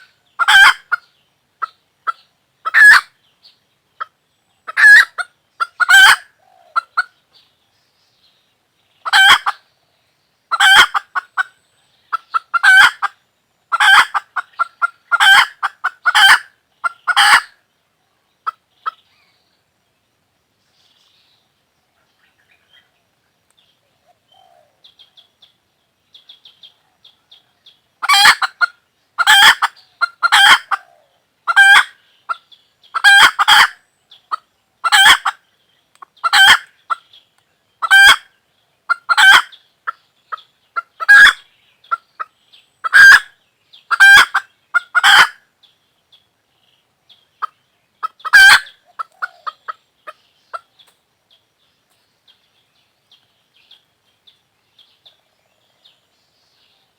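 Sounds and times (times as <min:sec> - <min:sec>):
chicken calling loudly: 0:02.7 - 0:03.1, 0:04.7 - 0:07.1, 0:13.7 - 0:17.6, 0:28.0 - 0:32.0, 0:41.0 - 0:41.4, 0:48.2 - 0:49.7.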